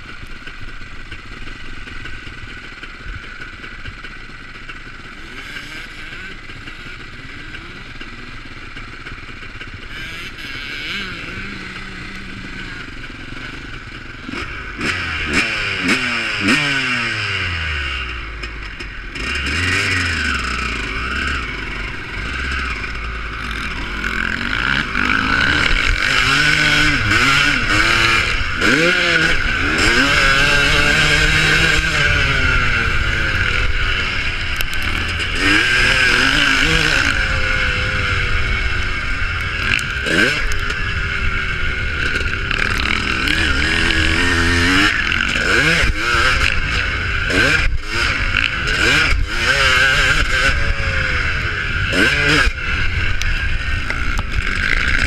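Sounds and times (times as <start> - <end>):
motocross bike engines revving: 0.0 - 55.0.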